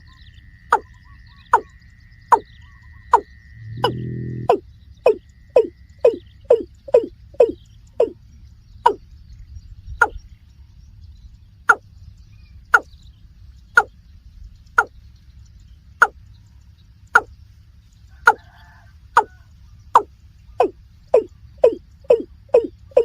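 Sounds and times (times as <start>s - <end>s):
faint low hum: 0.0s - 23.0s
bird calling hollow notes: 0.7s - 8.2s, 8.8s - 9.1s, 12.7s - 12.9s, 14.8s - 15.0s, 16.0s - 16.2s, 20.0s - 23.0s.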